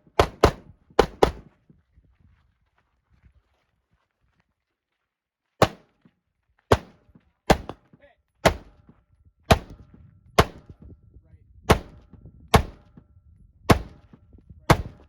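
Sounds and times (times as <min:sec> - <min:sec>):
rifle shots: 0:00.1 - 0:01.5, 0:05.6 - 0:05.9, 0:06.7 - 0:07.8, 0:08.4 - 0:08.8, 0:09.5 - 0:09.8, 0:10.4 - 0:10.7, 0:11.7 - 0:12.9, 0:13.7 - 0:14.1.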